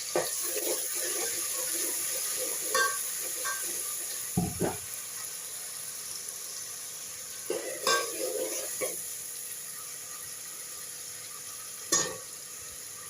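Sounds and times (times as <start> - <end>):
spices sizzling in hot oil: 0.0 - 13.0
spoon knocking against pan: 4.4 - 4.8.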